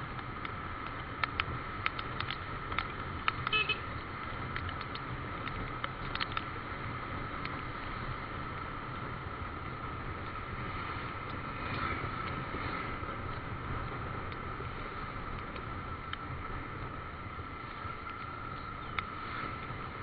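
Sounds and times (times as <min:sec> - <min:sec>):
motorcycle engine and road noise: 0:00.0 - 0:20.0
sharp ticks: 0:00.1 - 0:06.6
motorcycle horn toot: 0:03.5 - 0:03.9.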